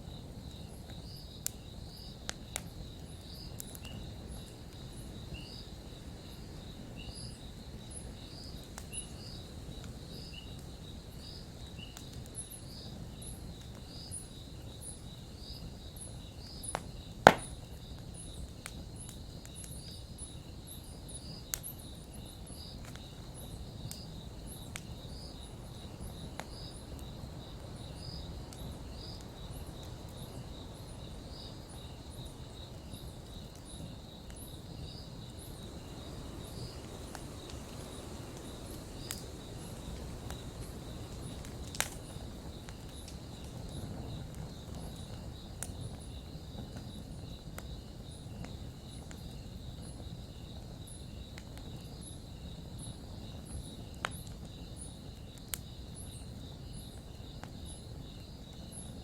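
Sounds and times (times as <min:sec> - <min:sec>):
campfire burning with pops: 0:00.0 - 0:59.0
crickets chirping: 0:00.0 - 0:59.0.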